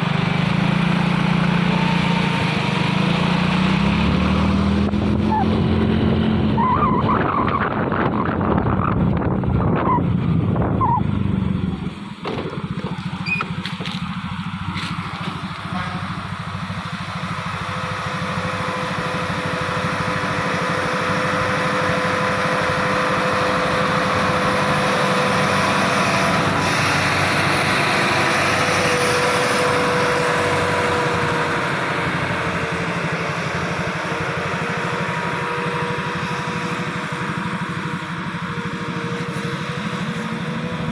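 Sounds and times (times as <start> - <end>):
truck engine labouring: 0.0 - 40.9.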